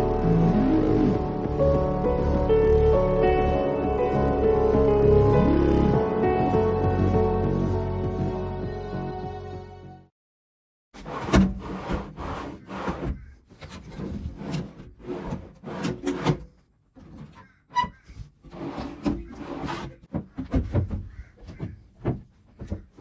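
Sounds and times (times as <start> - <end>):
wooden drawers scraping and knocking: 11.0 - 23.0.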